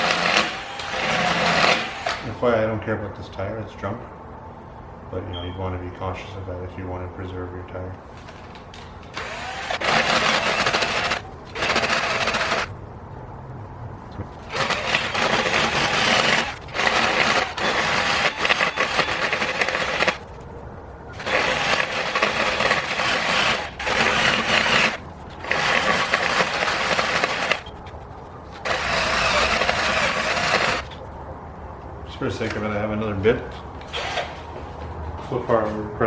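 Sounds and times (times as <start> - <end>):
drill rasp grinding aluminum rim: 0.0 - 2.2, 9.1 - 12.7, 14.4 - 20.2, 21.2 - 27.9, 28.5 - 31.0.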